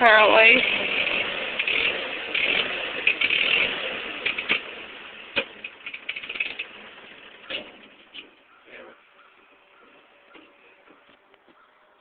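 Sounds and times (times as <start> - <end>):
engine pops and clicks: 0.0 - 8.4
tractor engine idling roughly: 4.2 - 8.5.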